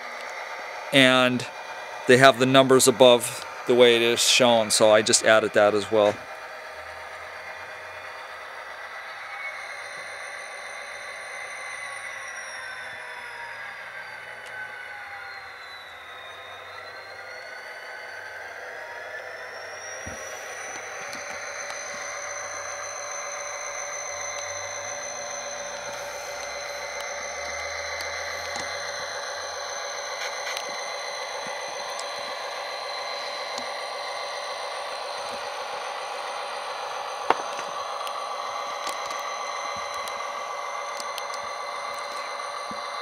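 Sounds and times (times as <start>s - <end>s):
high whine: 0.0s - 43.0s
synthesized diesel engine sound: 0.0s - 43.0s.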